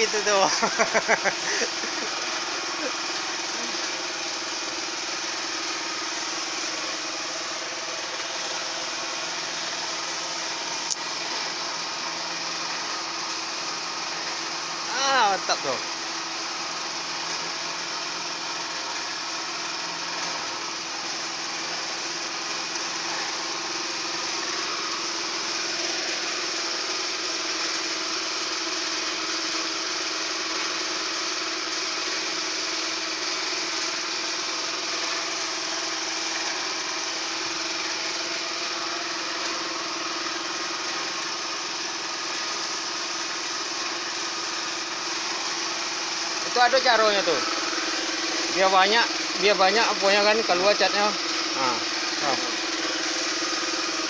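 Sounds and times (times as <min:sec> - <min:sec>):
small machine running with hiss: 0:00.0 - 0:54.0.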